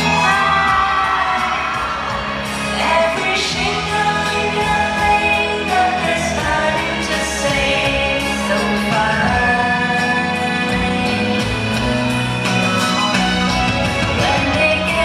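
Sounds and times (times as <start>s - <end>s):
woman singing pop ballad: 0.0s - 11.8s, 14.0s - 15.0s
band accompaniment: 0.0s - 15.0s.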